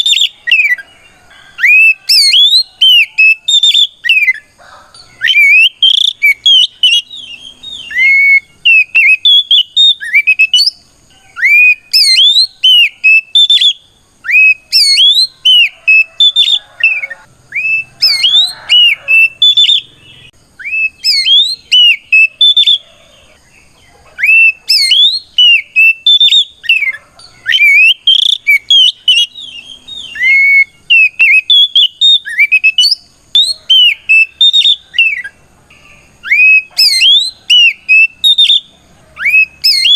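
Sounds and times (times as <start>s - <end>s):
bird singing whistled phrases: 0.0s - 0.9s, 1.5s - 4.5s, 5.1s - 23.0s, 24.2s - 39.9s.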